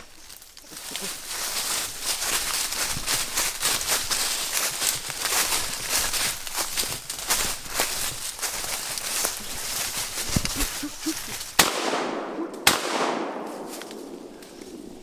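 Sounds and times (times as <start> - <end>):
rustling in leaves and brush: 0.0 - 15.0
gunshots echoing: 11.6 - 15.0.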